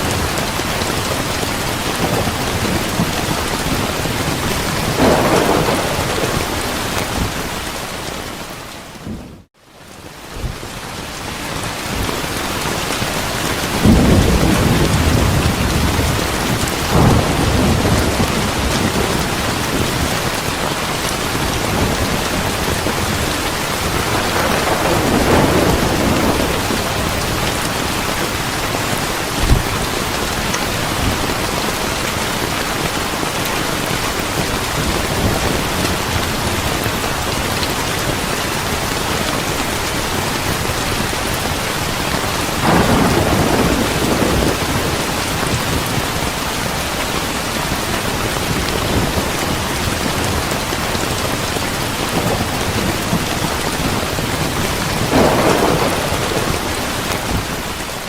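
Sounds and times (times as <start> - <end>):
thunder rumbling: 0.0 - 9.5, 11.8 - 46.4, 47.2 - 58.0
heavy rain: 0.0 - 58.0
sharp thunder crack: 4.6 - 7.9, 13.8 - 20.3, 21.7 - 28.4, 29.2 - 30.2, 42.6 - 45.0, 54.9 - 57.7.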